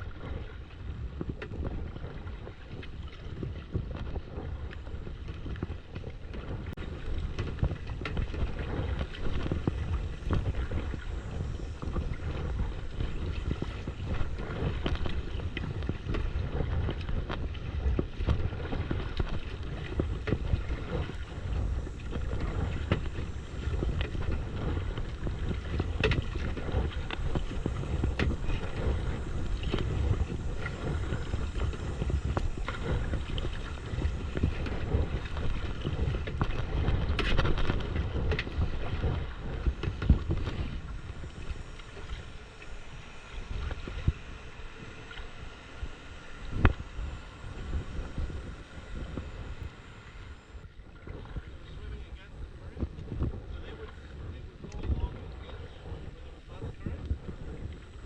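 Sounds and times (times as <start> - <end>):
water clicks and splashes: 0.0 - 56.0
wind buffeting microphone: 0.0 - 58.0.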